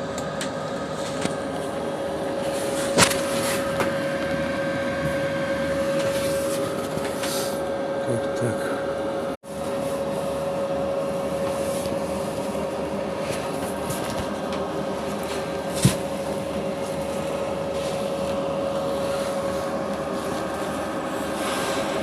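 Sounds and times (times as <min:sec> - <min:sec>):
machine drone: 0:00.0 - 0:22.0.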